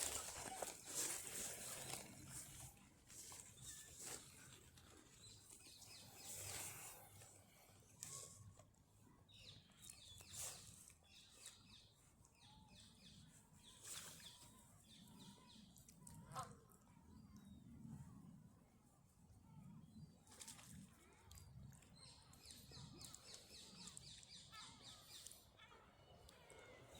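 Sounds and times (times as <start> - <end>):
small birds chirping: 0.0 - 8.2, 21.4 - 26.9
soft brushing noises: 0.0 - 9.0.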